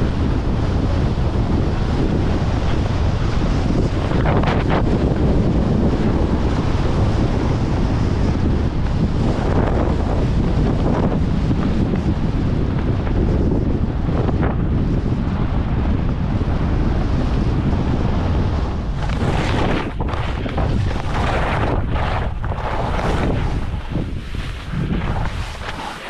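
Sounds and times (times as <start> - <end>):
wind buffeting microphone: 0.0 - 26.0
skis sliding over snow: 16.3 - 26.0.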